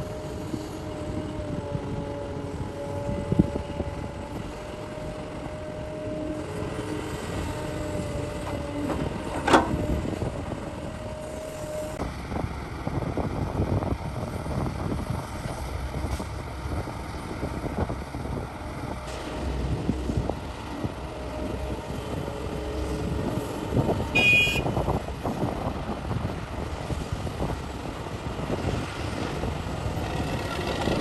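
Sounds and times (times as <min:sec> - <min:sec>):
diesel excavator engine running: 0:00.0 - 0:31.0.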